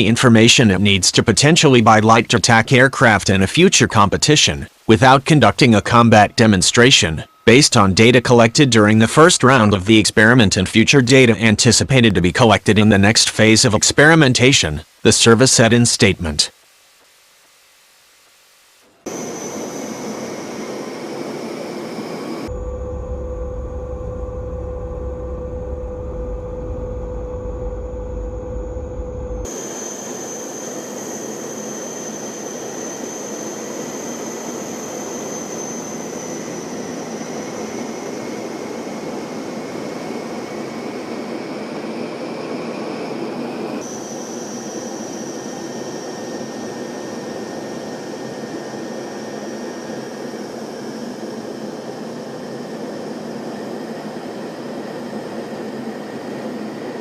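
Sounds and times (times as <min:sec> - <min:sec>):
hissing whine: 0:00.0 - 0:57.0
aircraft engine drone: 0:18.9 - 0:57.0.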